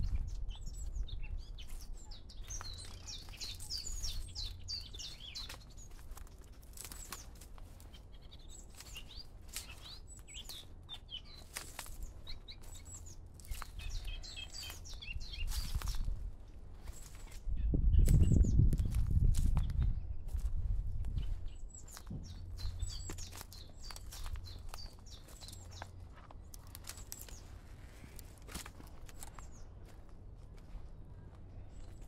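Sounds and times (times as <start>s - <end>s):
songbirds chirping: 0.0s - 32.0s
steady low rumble: 17.4s - 32.0s.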